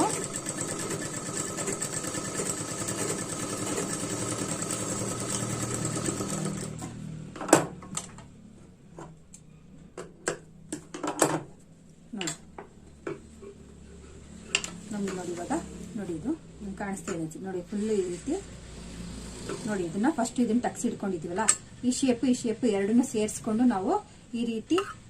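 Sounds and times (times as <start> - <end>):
sewing machine running: 0.0 - 6.9.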